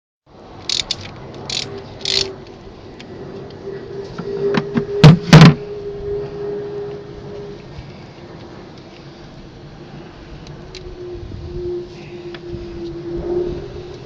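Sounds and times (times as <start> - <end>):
hand tools clicking on metal: 0.6 - 2.3.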